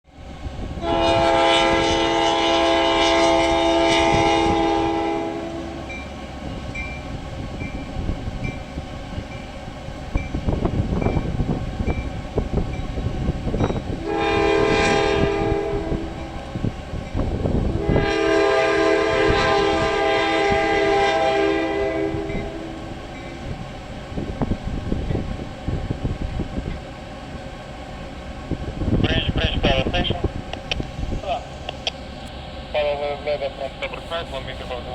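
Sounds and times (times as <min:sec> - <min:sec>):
train horn blasts: 0:00.8 - 0:06.0, 0:13.9 - 0:16.6, 0:17.6 - 0:23.3.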